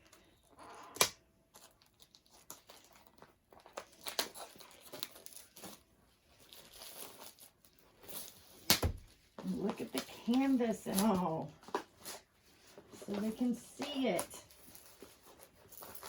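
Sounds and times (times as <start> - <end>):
packaging crinkling and tearing: 0.1 - 12.3.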